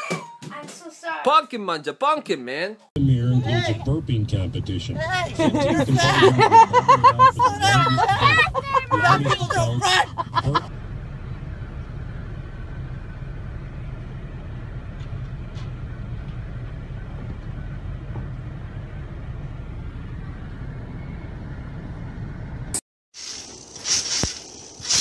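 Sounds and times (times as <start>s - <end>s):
vehicle rumble inside car: 3.0s - 22.8s.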